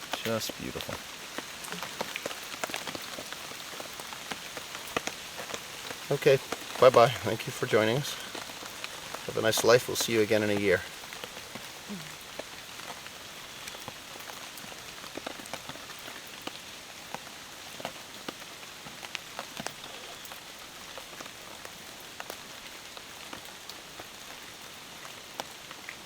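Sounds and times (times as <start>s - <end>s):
rain hissing: 0.0s - 25.8s
raindrops ticking on surfaces: 0.0s - 26.0s.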